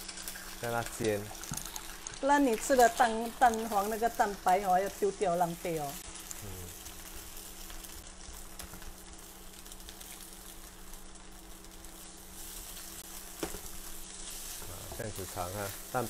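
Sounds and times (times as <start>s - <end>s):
faint sizzling of frying rice: 0.0s - 16.0s
spatula stirring in a wok: 11.8s - 16.0s.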